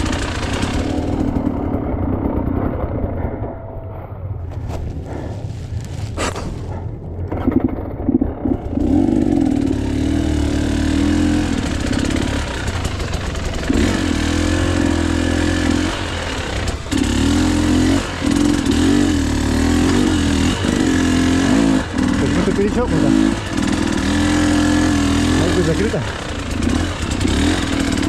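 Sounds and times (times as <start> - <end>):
dirt bike engine revving: 8.4 - 28.0.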